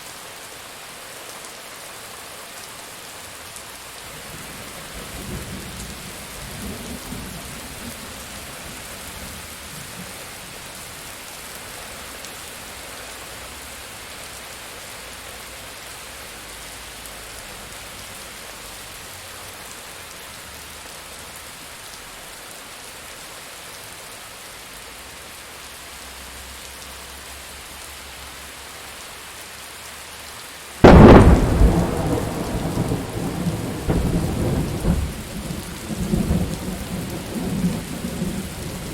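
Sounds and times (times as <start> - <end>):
steady rain: 0.0 - 38.9
loud close thunderclap: 30.8 - 38.9.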